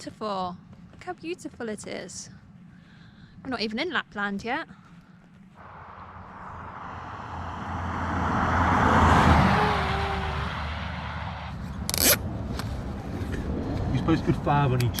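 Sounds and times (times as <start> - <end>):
vehicle passing by: 5.6 - 14.8.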